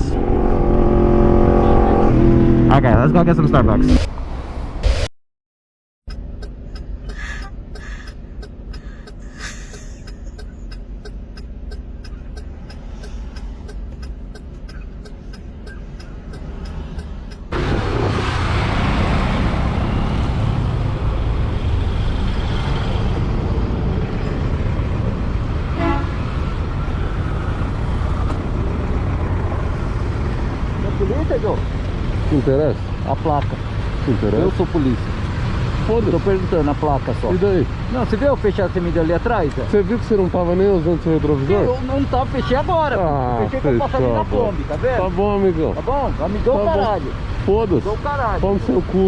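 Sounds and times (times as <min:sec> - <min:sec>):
wind: 0:00.0 - 0:05.0, 0:06.0 - 0:49.0
traffic: 0:00.0 - 0:05.1, 0:06.0 - 0:49.0
motorcycle engine humming: 0:06.0 - 0:17.6
steady ticking: 0:06.1 - 0:17.6
short horn-like tone: 0:25.8 - 0:26.2.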